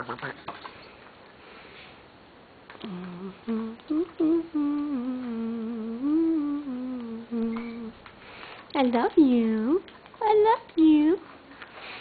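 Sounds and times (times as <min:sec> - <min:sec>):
person humming a slow tune: 0:02.8 - 0:08.0.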